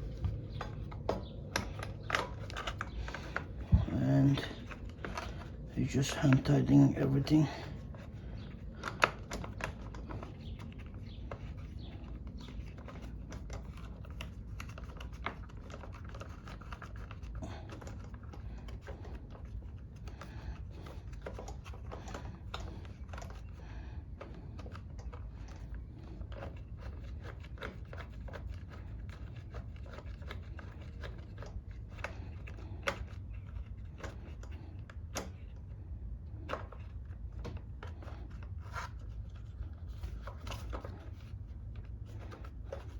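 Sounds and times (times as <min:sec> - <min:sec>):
nuts threaded on by hand: 0:00.0 - 0:42.9
steady low hum: 0:00.0 - 0:42.9
metal parts clicking and tapping: 0:00.1 - 0:05.5.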